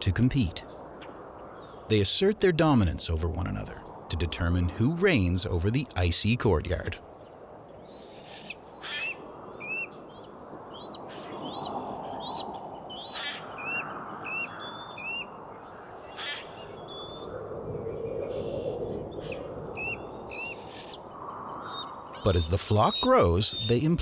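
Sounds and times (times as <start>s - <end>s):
eagles chittering: 19.3s - 24.0s.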